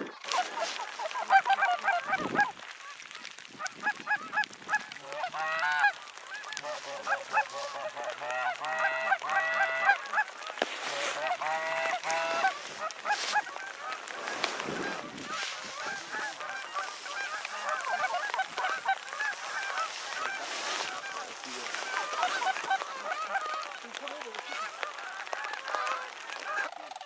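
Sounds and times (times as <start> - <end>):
geese honking: 0.0 - 27.0.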